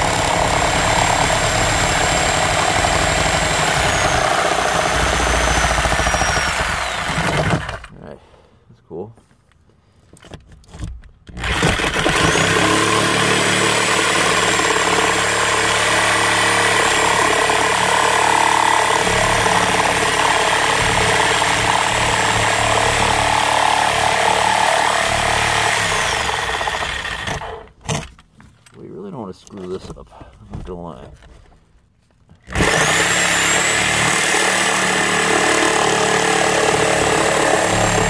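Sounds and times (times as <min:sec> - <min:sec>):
electric power tool whining: 0:00.0 - 0:07.9, 0:11.3 - 0:28.1, 0:32.4 - 0:38.0.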